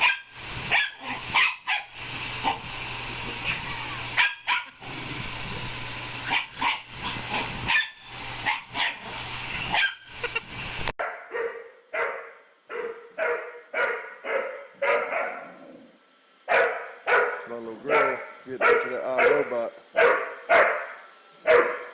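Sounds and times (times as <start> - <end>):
dog barking: 0.0 - 1.9, 4.2 - 4.8, 6.3 - 6.9, 7.7 - 9.0, 9.7 - 10.0, 11.0 - 15.6, 16.5 - 21.9
machine hum: 0.0 - 10.9, 11.7 - 21.9
second dog barking: 4.2 - 4.7, 11.0 - 15.6, 16.5 - 21.9.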